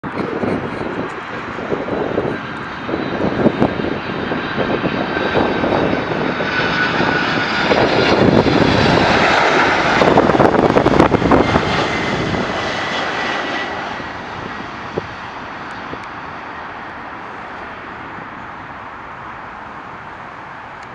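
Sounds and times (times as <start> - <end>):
airliner passing low overhead: 0.0 - 20.9
high engine whine: 0.0 - 20.9.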